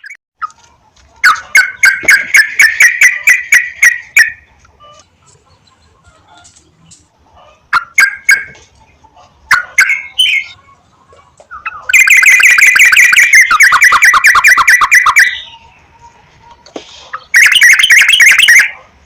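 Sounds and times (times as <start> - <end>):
bird chattering calls: 11.5 - 15.7.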